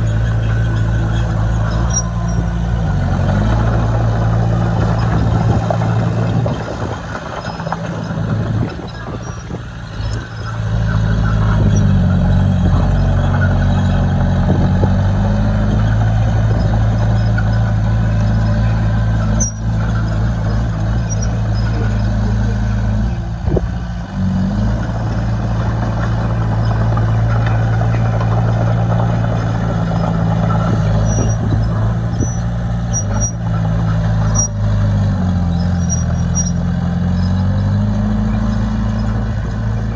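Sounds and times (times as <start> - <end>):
heavy machinery diesel engine: 0.0 - 39.9.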